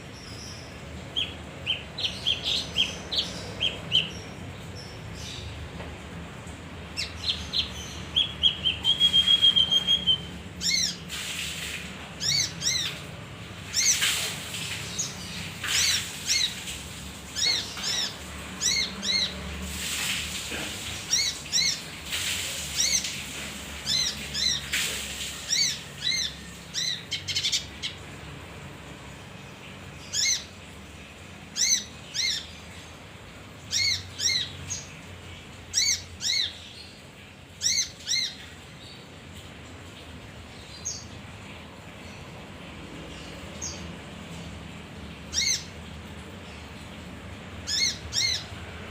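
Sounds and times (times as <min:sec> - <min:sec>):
bird whistled notes and trill: 0:08.2 - 0:11.0.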